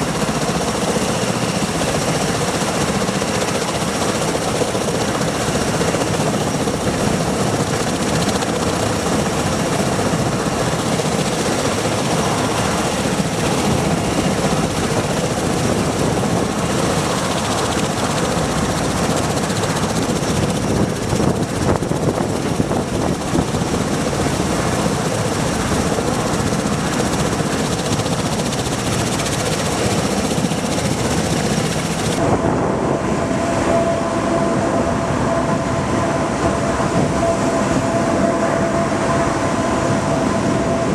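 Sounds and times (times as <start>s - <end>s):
aircraft engines and rotors: 0.0s - 40.9s
steady engine whine: 0.0s - 40.9s.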